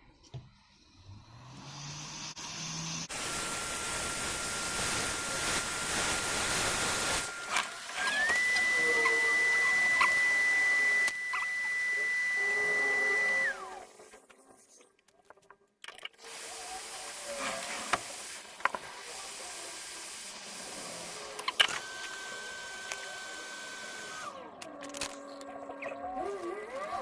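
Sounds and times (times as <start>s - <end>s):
hot air station blowing: 1.6s - 13.7s.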